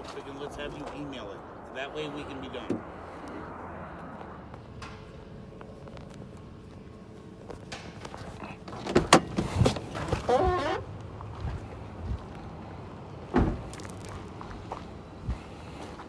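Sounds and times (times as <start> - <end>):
sharp knocks and clunks: 7.6 - 10.7, 13.3 - 13.9.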